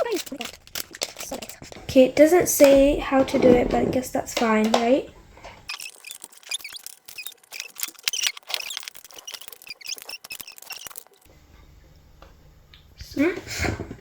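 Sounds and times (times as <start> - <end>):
plastic toy pieces clicking: 0.0 - 1.6, 5.7 - 11.3
plastic squeaking on plastic: 0.0 - 1.9, 5.4 - 11.3.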